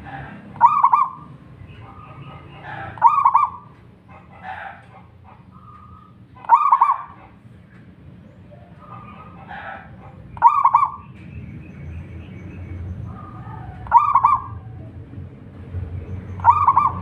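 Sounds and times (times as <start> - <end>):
dove cooing: 0.0 - 7.4, 8.5 - 11.0, 13.1 - 15.0, 16.4 - 17.0
faint bird calls: 0.0 - 15.0, 16.0 - 17.0.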